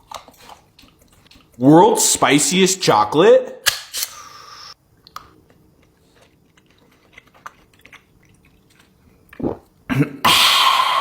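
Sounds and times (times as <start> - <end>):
person chewing chocolate: 0.0 - 1.8, 5.0 - 9.8.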